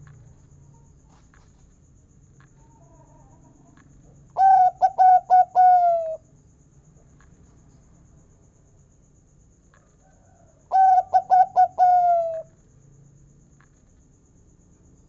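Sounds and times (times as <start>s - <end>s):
dove cooing: 4.4s - 6.2s, 10.7s - 12.5s.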